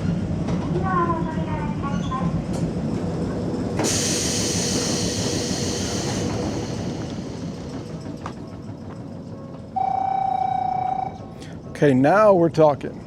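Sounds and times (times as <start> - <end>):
train rumbling and hissing: 0.0 - 13.0
steady electronic tone: 3.8 - 8.6.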